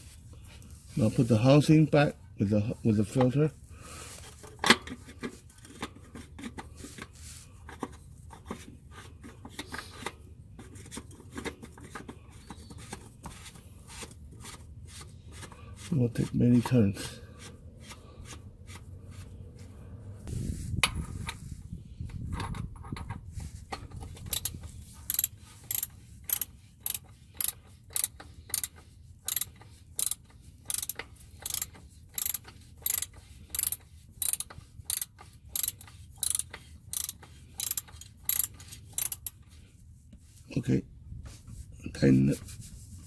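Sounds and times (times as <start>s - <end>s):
ratchet wrench clicking: 24.2s - 39.4s
low rubbing of threads: 42.4s - 43.0s.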